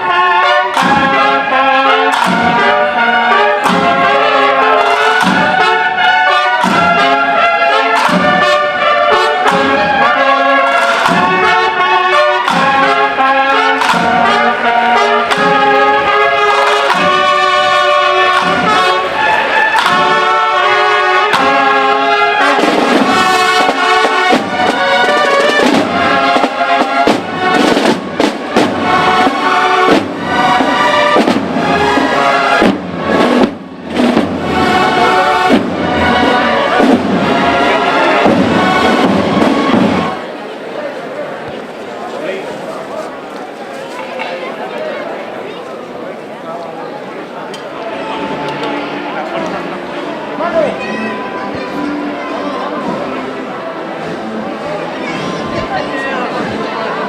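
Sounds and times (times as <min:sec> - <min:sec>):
trumpet and trombone notes: 0:00.0 - 0:40.6, 0:47.6 - 0:57.0
brass band playing a march: 0:00.0 - 0:40.9, 0:47.7 - 0:57.0
steady drum beat: 0:21.2 - 0:40.2.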